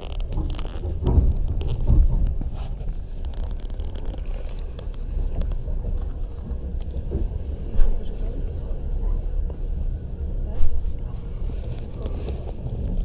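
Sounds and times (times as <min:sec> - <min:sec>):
wheels knocking over track: 0:00.0 - 0:05.4
train carriage rumble: 0:00.0 - 0:13.0.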